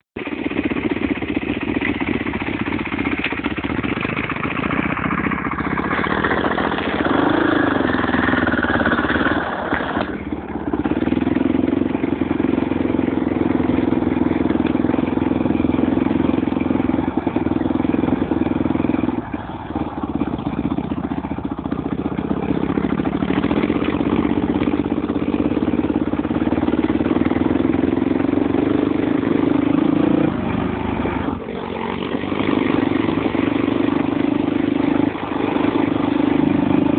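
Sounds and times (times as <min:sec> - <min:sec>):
motorbike engine running: 0:00.2 - 0:36.9.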